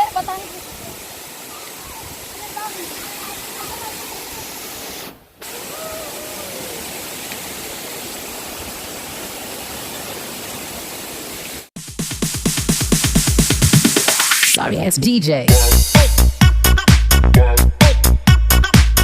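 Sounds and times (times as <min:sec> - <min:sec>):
waterfall rushing: 0:00.0 - 0:11.7
electronic dance music: 0:11.8 - 0:19.0.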